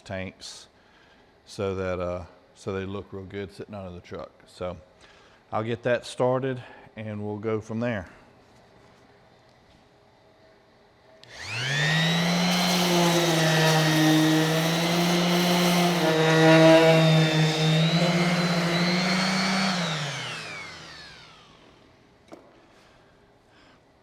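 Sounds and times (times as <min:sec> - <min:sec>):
electric sander whining on metal: 0:11.3 - 0:21.8.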